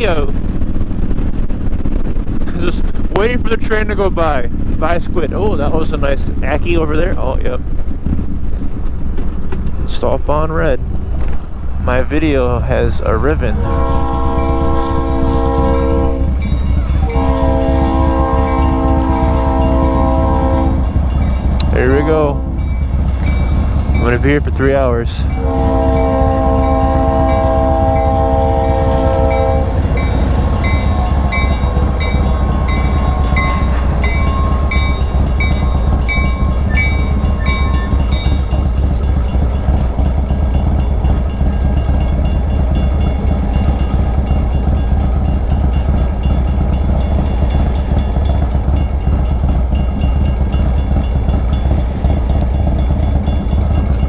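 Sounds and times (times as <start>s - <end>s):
train rumbling past: 0.0s - 54.0s
train horn chord: 13.5s - 24.1s, 25.3s - 38.9s.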